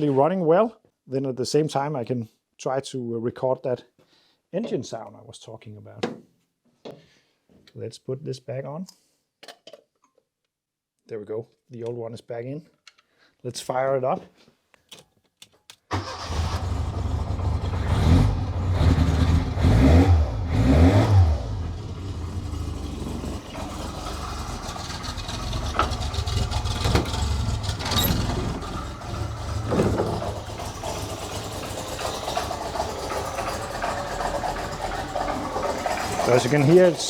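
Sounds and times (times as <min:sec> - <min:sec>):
car engine starting and revving: 0:15.9 - 0:37.0.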